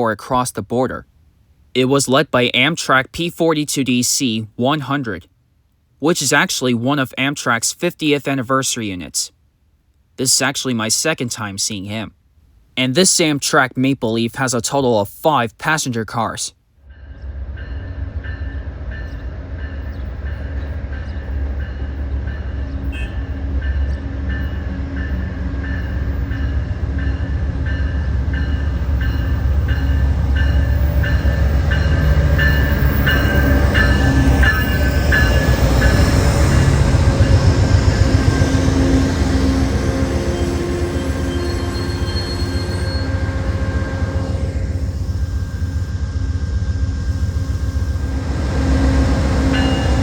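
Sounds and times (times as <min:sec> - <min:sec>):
train passing rumble: 0:16.8 - 0:50.0.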